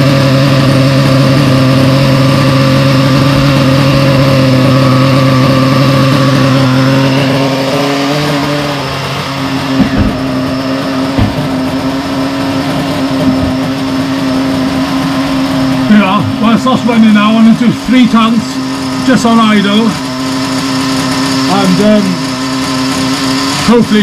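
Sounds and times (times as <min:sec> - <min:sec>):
nitro engine idling: 0:00.0 - 0:24.0
short knocks: 0:09.7 - 0:10.4, 0:11.1 - 0:11.8.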